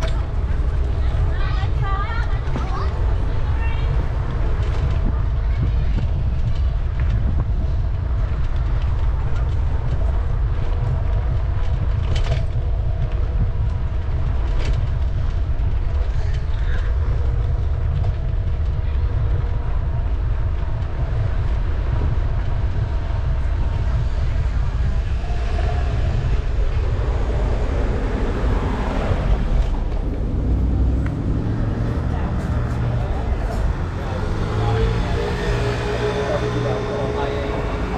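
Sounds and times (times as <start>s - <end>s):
city street noise: 0.0s - 37.9s
wind buffeting microphone: 0.0s - 37.9s
bicycle clicks and rattles: 5.9s - 19.3s.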